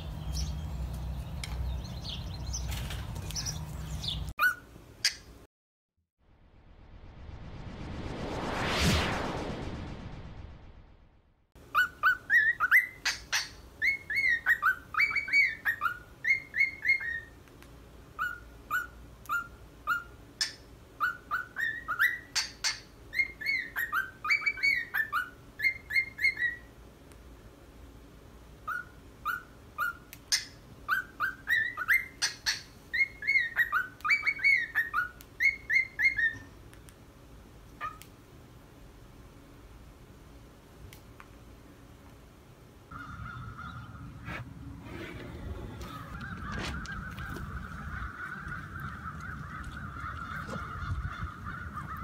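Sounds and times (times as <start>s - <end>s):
cockatiel whistling a tune: 11.7s - 17.3s, 21.0s - 22.5s, 23.1s - 26.7s, 28.7s - 36.5s.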